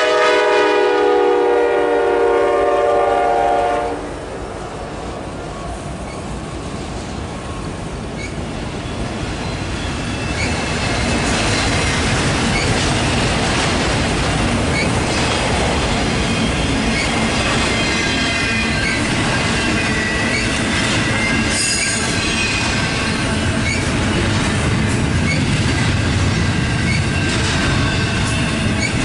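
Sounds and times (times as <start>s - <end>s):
rumble of wheels on rail: 0.0s - 29.0s
faint wheel squeal: 5.6s - 6.3s.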